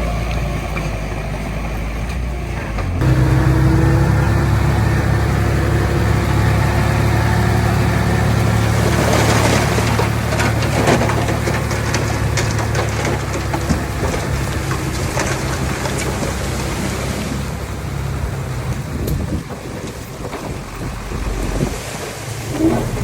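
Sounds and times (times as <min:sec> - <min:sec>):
bulldozer diesel engine running: 0:00.0 - 0:23.0
soil and stones scraping and rattling: 0:06.1 - 0:23.0.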